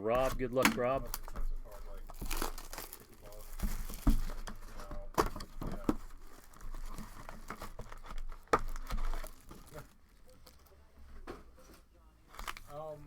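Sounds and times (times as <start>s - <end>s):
cellophane crinkling and tearing: 0.0s - 13.0s
sharp snaps of cellophane: 12.3s - 12.7s.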